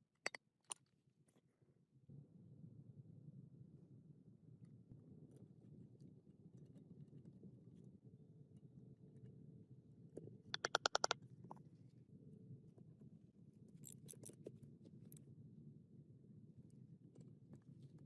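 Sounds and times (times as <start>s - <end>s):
sharp clicks: 10.6s - 11.2s.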